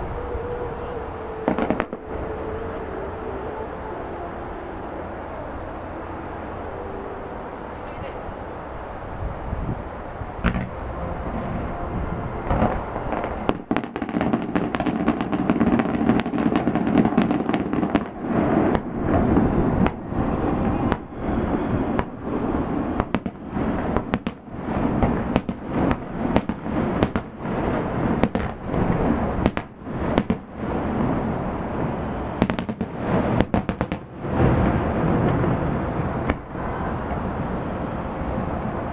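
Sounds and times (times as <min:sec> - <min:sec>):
fireworks bangs and crackles: 0:01.4 - 0:02.3, 0:10.4 - 0:11.7, 0:12.4 - 0:38.9
rumbling boom: 0:09.6 - 0:38.9.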